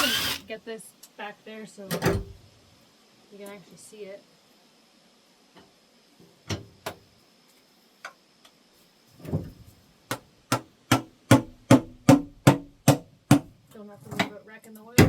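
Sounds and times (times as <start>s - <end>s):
hammer knocking on metal pan: 10.5s - 13.5s.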